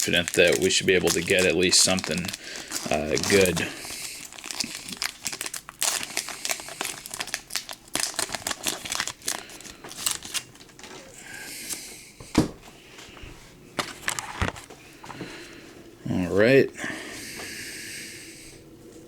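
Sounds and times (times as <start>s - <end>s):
foil wrapper crinkling: 0.0s - 11.8s.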